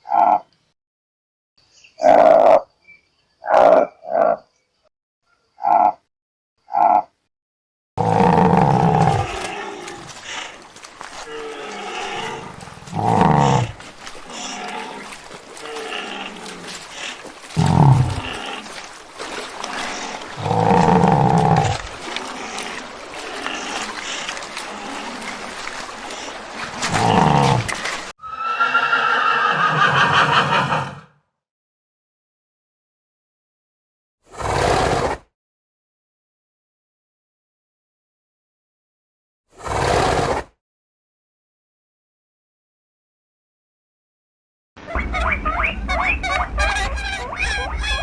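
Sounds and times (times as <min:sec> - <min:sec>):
animal calling: 0:08.0 - 0:31.1
higher-pitched animal call: 0:28.2 - 0:31.1.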